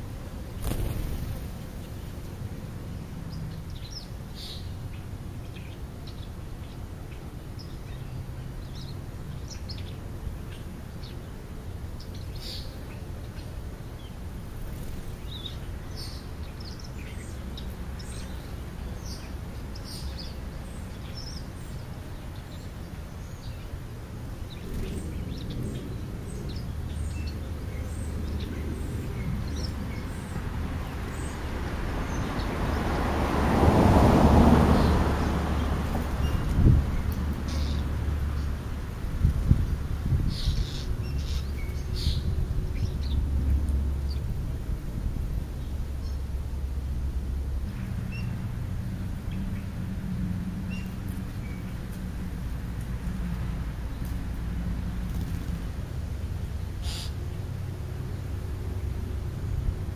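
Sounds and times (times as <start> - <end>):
small birds chirping: 0.1 - 33.0, 34.6 - 44.6, 50.6 - 59.9
vehicle approaching: 24.5 - 59.9.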